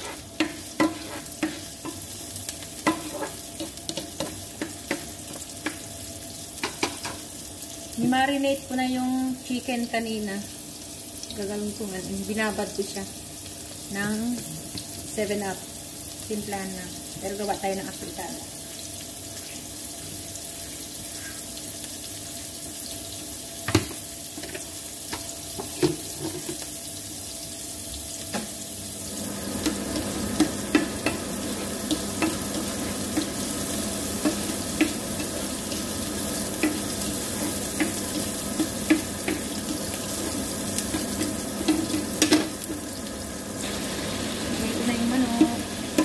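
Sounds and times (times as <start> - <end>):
spatula scraping pan: 0.0 - 2.1, 2.8 - 5.8
onion sizzling in hot oil: 0.0 - 46.0.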